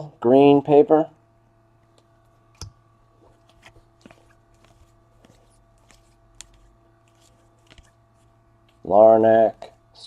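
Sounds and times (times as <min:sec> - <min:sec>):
trading cards clicking and rustling: 0:03.4 - 0:08.9.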